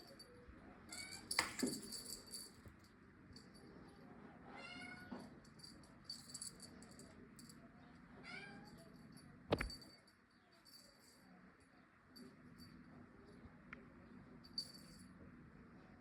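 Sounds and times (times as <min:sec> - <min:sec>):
cat meowing: 0:04.5 - 0:05.2, 0:08.2 - 0:08.8.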